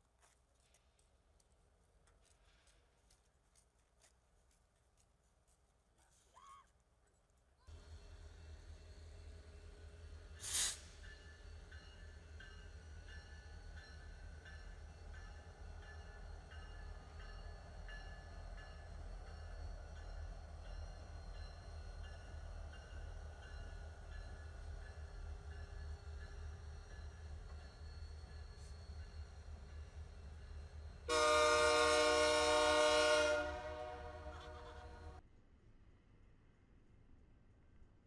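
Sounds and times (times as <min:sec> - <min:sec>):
train rumbling past: 0:07.7 - 0:35.2
loud hiss: 0:10.4 - 0:11.0.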